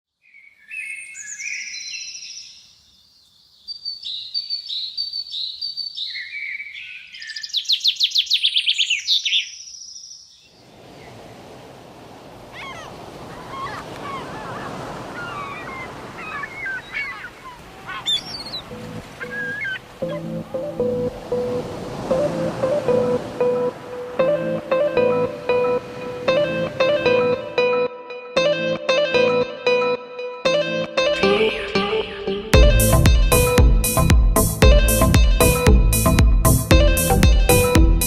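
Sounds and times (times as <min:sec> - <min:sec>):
songbird singing: 0:00.1 - 0:24.4
faint bird chirps: 0:12.5 - 0:20.2.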